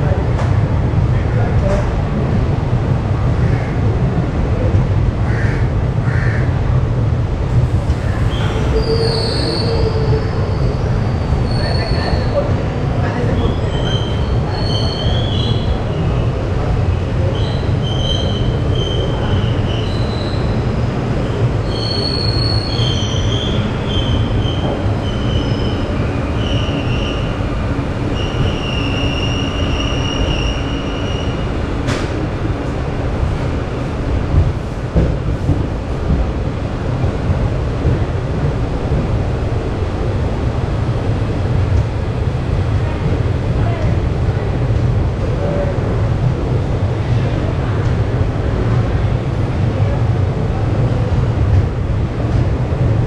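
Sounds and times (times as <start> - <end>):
train wheels rumbling on track: 0.0 - 53.0
high-pitched wheel squeal: 8.3 - 10.9.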